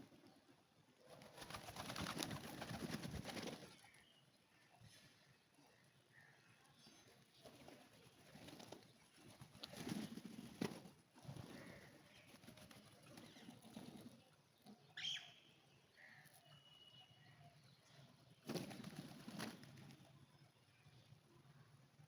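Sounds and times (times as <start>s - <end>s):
pigeon wings flapping: 1.1s - 3.8s, 7.6s - 14.1s, 18.5s - 20.0s.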